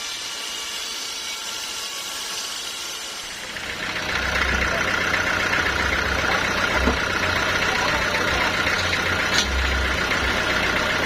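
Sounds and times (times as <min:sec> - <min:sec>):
motor hum: 0:01.8 - 0:11.0
low machinery rumble: 0:03.3 - 0:11.0.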